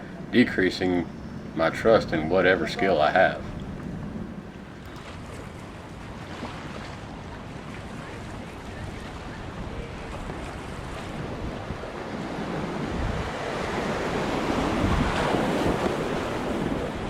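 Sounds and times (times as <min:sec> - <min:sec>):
wind noise on microphone: 0:01.2 - 0:17.0
rushing whitewater: 0:01.6 - 0:03.8.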